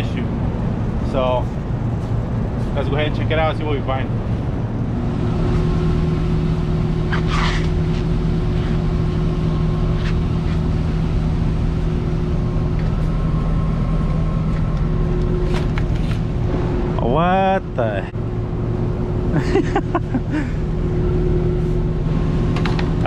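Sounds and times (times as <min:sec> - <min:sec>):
air conditioning unit humming: 0:00.0 - 0:23.0
handling clicks and scrapes: 0:07.1 - 0:08.8, 0:15.4 - 0:16.3.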